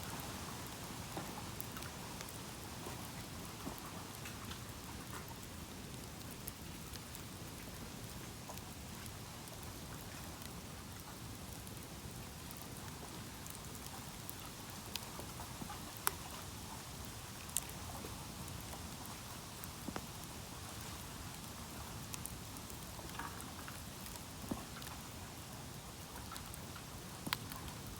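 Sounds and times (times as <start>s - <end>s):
campfire crackling: 0.2s - 27.9s.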